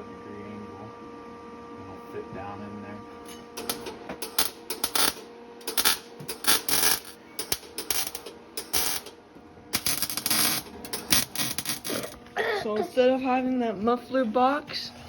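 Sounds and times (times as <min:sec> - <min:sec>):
welding bursts: 0:03.6 - 0:12.2.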